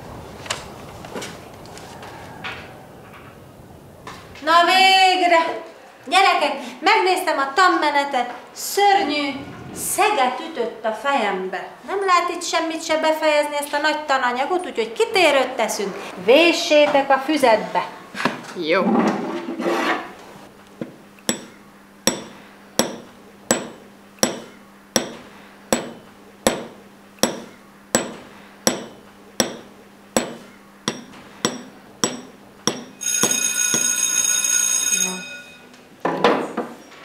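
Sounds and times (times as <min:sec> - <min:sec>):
hammer striking metal chisel: 0:21.2 - 0:33.9
steady high ringing: 0:21.3 - 0:26.1, 0:27.2 - 0:35.8.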